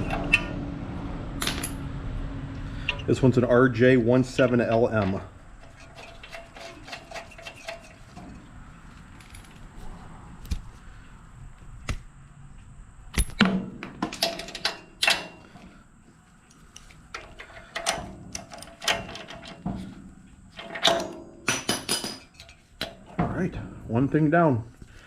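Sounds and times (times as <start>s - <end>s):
metal hand tools clinking and scraping: 2.7s - 9.7s, 20.5s - 23.1s.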